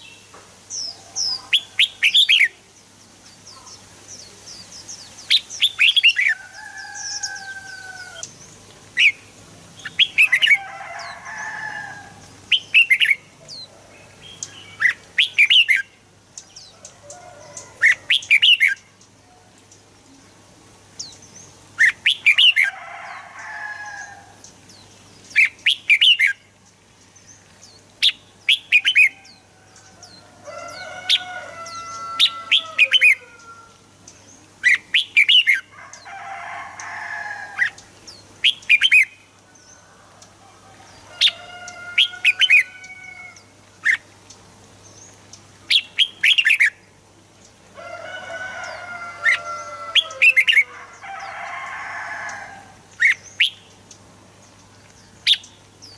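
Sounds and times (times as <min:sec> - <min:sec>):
birds whistling: 0:53.0 - 0:53.7.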